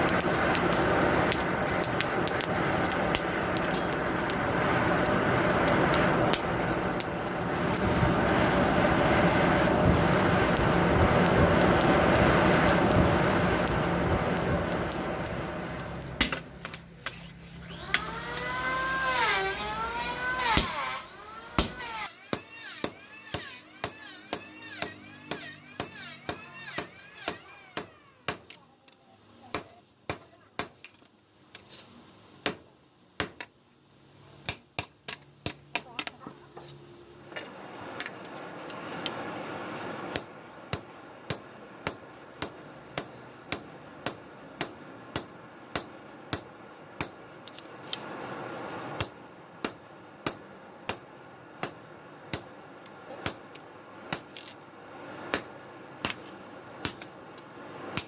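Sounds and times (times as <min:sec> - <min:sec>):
hammer striking steel: 0:21.5 - 0:28.5.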